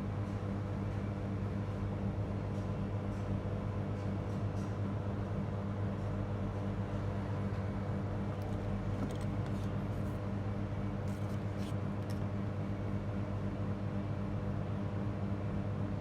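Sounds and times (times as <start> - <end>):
low electrical hum: 4.8 - 16.0.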